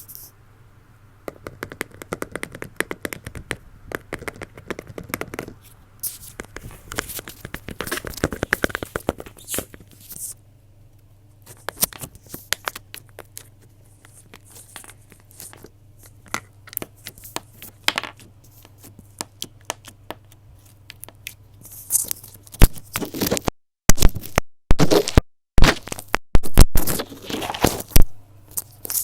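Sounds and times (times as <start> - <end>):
crinkling and tearing: 5.6 - 10.2, 24.8 - 29.0.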